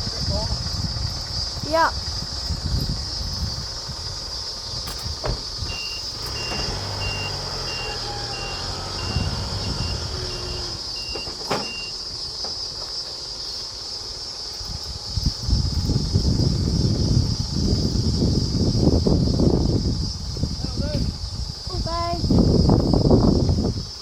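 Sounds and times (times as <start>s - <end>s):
truck engine running: 0.0s - 23.8s
reversing alarm beeping: 5.7s - 12.1s.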